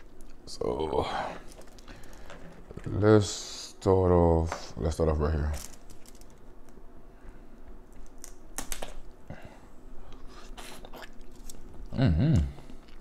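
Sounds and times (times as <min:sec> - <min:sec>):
crab shell cracking: 0:07.9 - 0:09.0.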